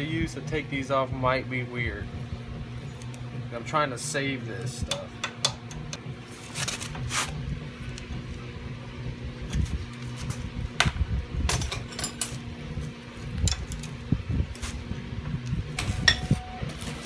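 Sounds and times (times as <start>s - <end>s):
steady low hum: 0.0s - 17.0s
metal tools clinking on metal: 11.5s - 12.5s, 15.7s - 17.0s.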